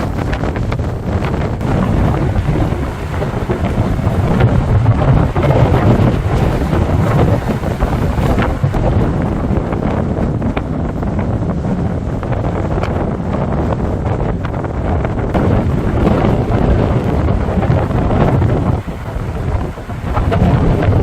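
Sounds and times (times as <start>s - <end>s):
rough sea waves: 0.0s - 21.0s
storm wind gusting on microphone: 0.0s - 21.0s
rain falling: 1.6s - 8.5s.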